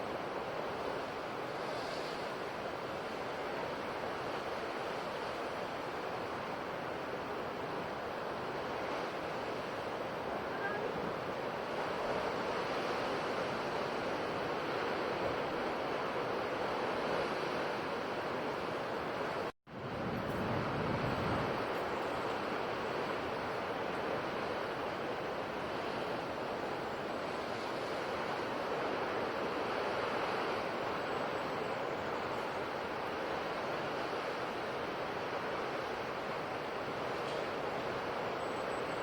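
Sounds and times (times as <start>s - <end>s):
sea waves on shore: 0.0s - 39.0s.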